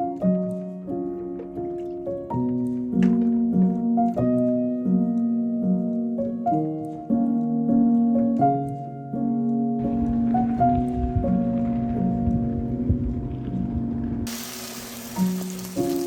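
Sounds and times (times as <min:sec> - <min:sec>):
gentle piano music: 0:00.0 - 0:16.0
steady background hiss: 0:14.3 - 0:16.0.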